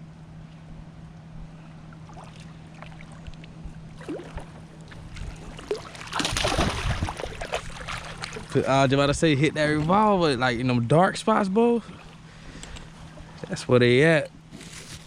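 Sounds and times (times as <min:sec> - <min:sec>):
faint steady hum: 0:00.0 - 0:15.0
water splashing against kayak: 0:02.0 - 0:10.1.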